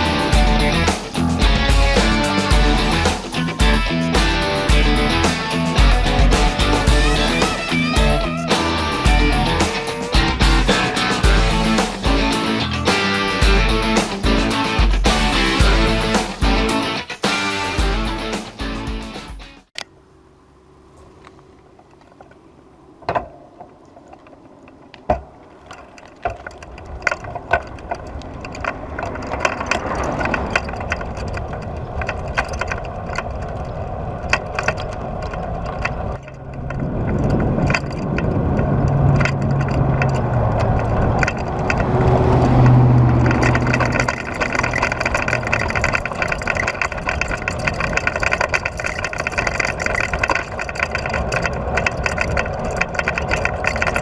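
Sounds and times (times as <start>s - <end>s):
road traffic noise: 0.0s - 23.3s, 24.3s - 54.0s
vehicle engine hum: 0.0s - 54.0s
small clicks and knocks: 23.0s - 42.0s, 42.6s - 54.0s.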